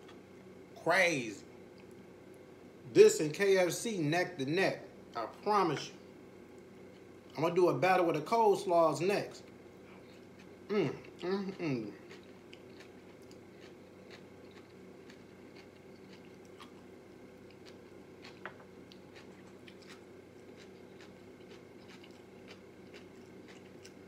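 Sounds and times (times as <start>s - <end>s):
low steady hum: 0.0s - 24.0s
faint chewing: 5.8s - 7.4s, 9.3s - 24.0s.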